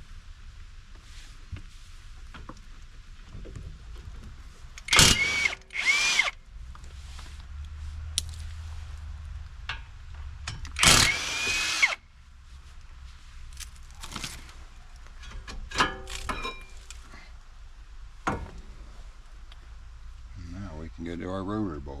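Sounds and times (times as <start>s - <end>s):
impact wrench running: 4.8s - 6.4s, 10.7s - 12.0s.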